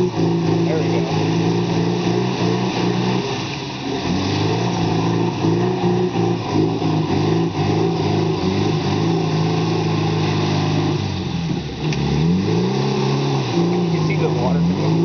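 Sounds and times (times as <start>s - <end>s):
car engine revving: 0.0s - 15.0s
tyres churning water: 0.0s - 15.0s.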